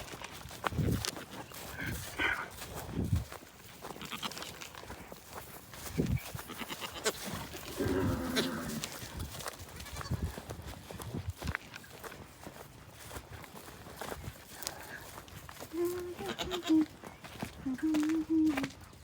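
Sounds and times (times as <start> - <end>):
farm animal bleating: 1.2 - 2.7, 3.7 - 4.8, 6.2 - 10.6, 15.6 - 18.6.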